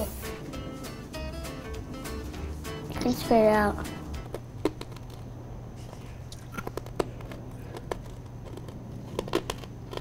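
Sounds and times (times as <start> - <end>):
low room hum: 0.0 - 10.0
child chewing candy: 4.1 - 10.0.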